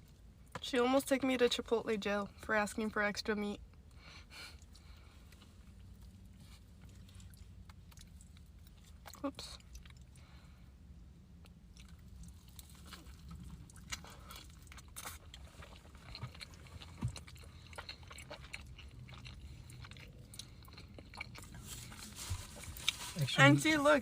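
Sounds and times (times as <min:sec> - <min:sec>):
chewing and biting: 0:04.6 - 0:10.3, 0:11.4 - 0:23.5.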